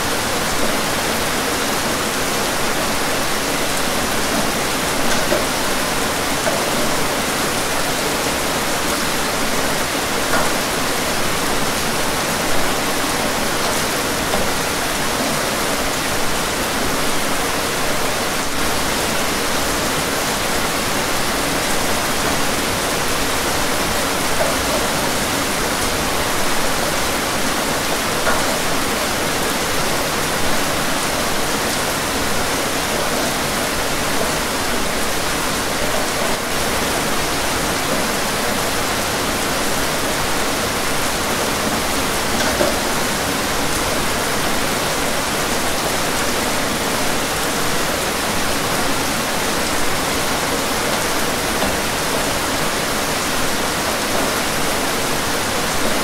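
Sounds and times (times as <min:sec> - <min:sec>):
louder raindrops: 0:00.0 - 0:56.0
steady rain hiss: 0:00.0 - 0:56.0.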